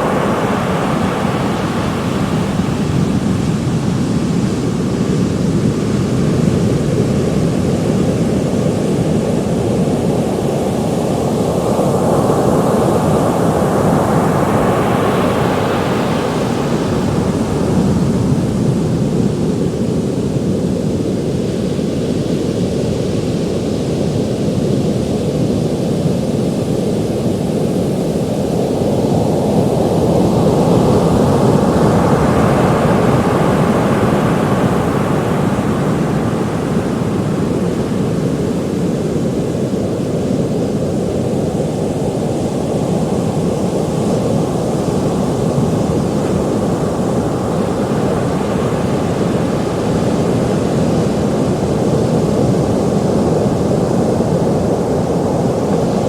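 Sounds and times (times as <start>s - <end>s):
ocean waves breaking: 0.0s - 6.3s, 8.9s - 20.8s.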